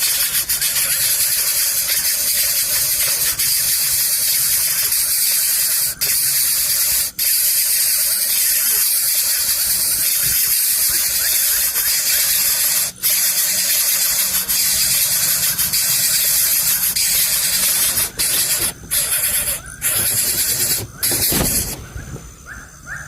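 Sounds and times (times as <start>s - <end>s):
nestling hissing begging call: 0.0s - 23.0s.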